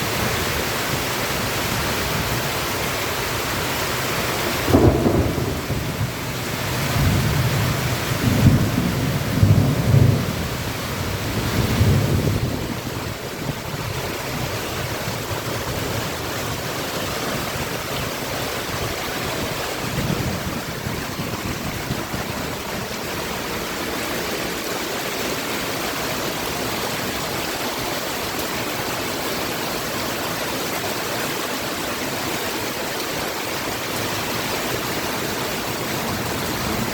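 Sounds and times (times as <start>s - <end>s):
heavy rain: 0.0s - 36.9s
thunder rumbling: 4.5s - 24.7s.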